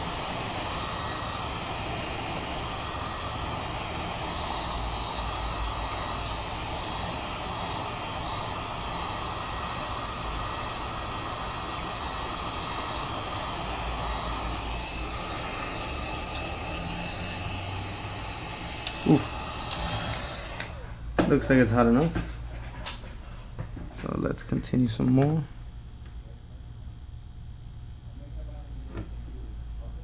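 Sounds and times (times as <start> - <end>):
heat gun blowing: 0.0 - 21.6.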